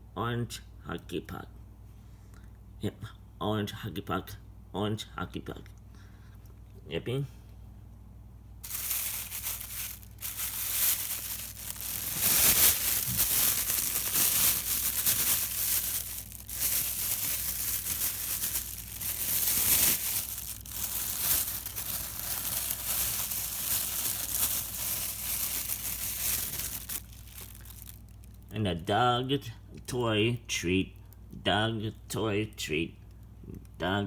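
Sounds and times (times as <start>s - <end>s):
crinkling and rustling: 8.6s - 28.5s.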